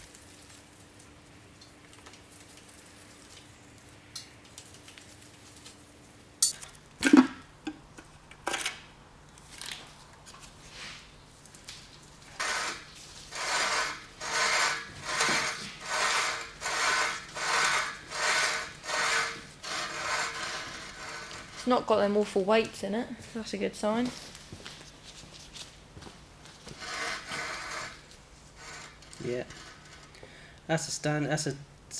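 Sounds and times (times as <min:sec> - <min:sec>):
metal clinks and knocks: 0:06.4 - 0:07.3
rasping scraping strokes: 0:12.3 - 0:21.9, 0:26.6 - 0:30.4.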